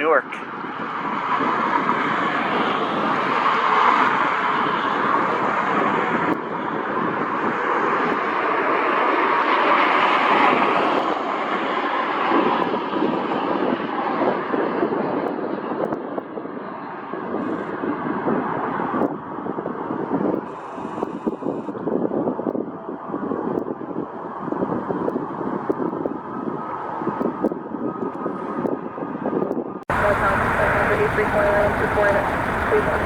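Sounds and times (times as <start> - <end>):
jet engines roaring past: 0.0 - 20.0, 29.9 - 33.0.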